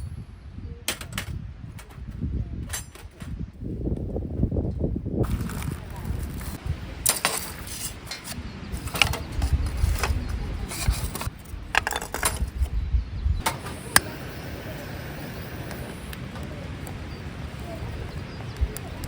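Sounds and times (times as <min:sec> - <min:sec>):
objects being handled: 0:05.2 - 0:12.7.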